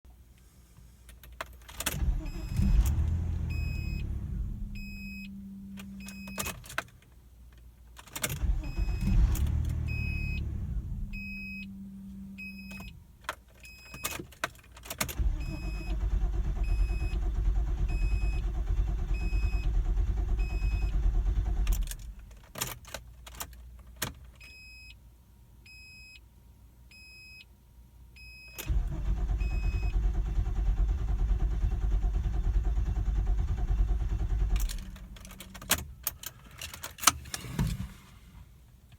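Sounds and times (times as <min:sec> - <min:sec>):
car engine starting and dying: 0:01.7 - 0:07.0, 0:08.2 - 0:13.2, 0:14.9 - 0:22.5, 0:28.6 - 0:38.8.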